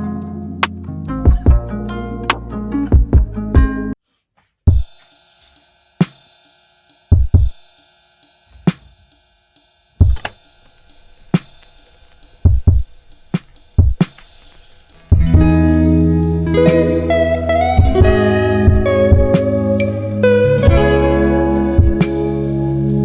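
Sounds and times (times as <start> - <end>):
drum machine beat: 1.2 - 1.7, 2.8 - 3.9, 4.7 - 9.4, 10.0 - 22.4
soft sustained synth pad: 10.6 - 23.0.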